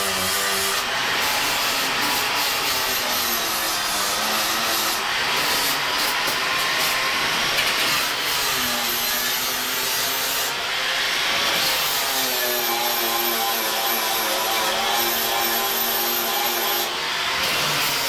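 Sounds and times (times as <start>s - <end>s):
power tool rasping: 0.0s - 10.6s, 11.2s - 18.0s.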